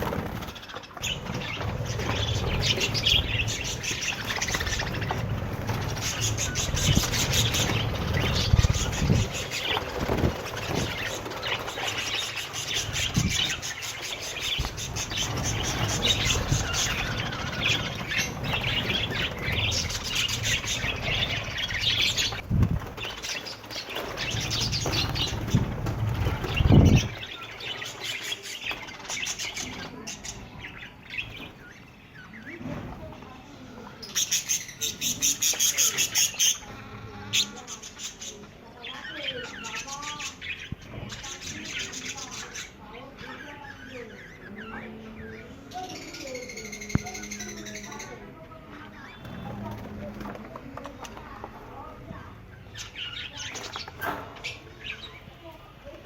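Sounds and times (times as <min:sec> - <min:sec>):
bird warbling: 0:00.0 - 0:32.5
budgerigars chattering and chirping: 0:00.0 - 0:32.7, 0:34.0 - 0:49.7, 0:52.5 - 0:55.5.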